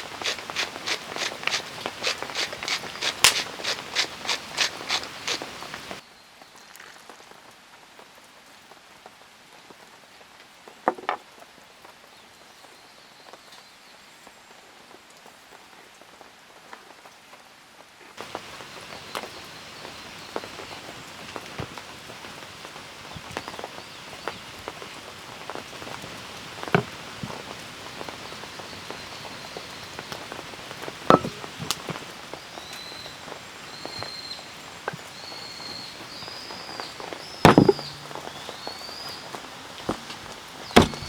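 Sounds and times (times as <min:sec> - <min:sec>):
steady rain falling: 0:00.0 - 0:06.0, 0:06.7 - 0:40.9
bird chirping: 0:26.2 - 0:41.0
knocks: 0:31.1 - 0:32.0, 0:37.5 - 0:38.3, 0:40.8 - 0:41.0.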